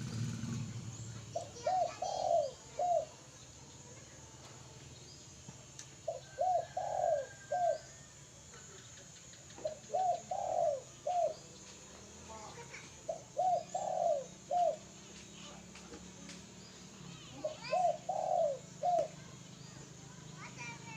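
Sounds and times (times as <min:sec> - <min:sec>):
dove cooing: 0:00.9 - 0:03.3, 0:06.0 - 0:08.0, 0:09.6 - 0:11.5, 0:12.7 - 0:15.0, 0:17.4 - 0:19.4.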